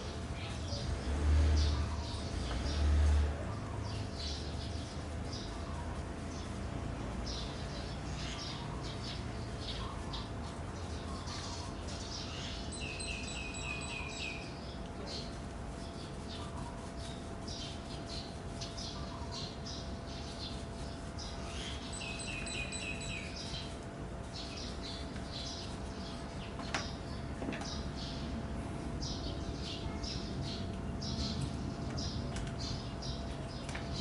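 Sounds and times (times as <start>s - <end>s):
songbirds chirping: 0.0s - 34.0s
bird singing repeated notes: 12.4s - 14.8s, 21.5s - 23.8s.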